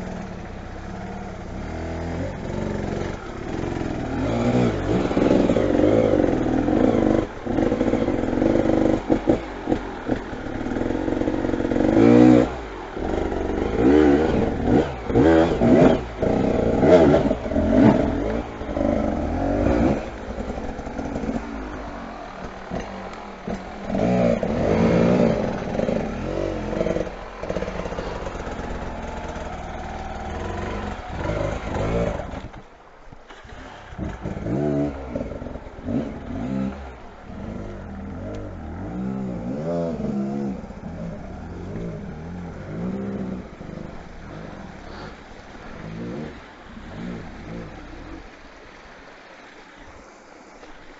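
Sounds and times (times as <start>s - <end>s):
motorcycle engines revving: 0.0s - 50.9s.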